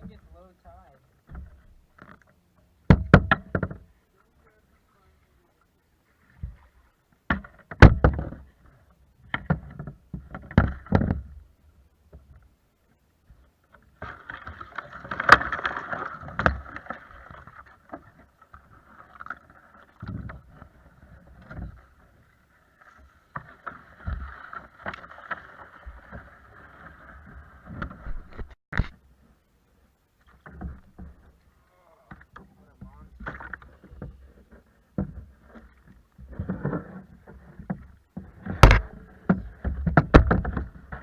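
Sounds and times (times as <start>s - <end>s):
knocks against kayak hull: 2.9s - 3.9s, 7.3s - 8.4s, 9.3s - 11.3s, 37.7s - 41.0s
water swishing: 13.8s - 28.5s.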